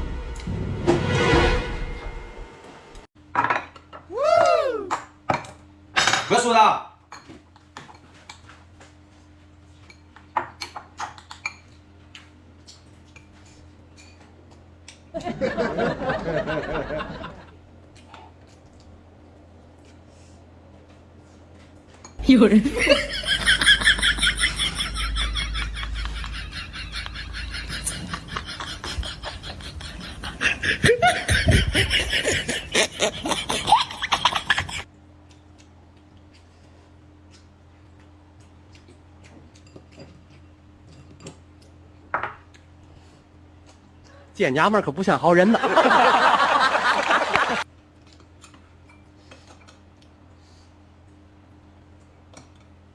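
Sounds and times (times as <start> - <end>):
laughter: 15.1 - 17.6, 22.4 - 34.9, 45.4 - 47.6
utensils clinking against dishes: 39.2 - 41.8.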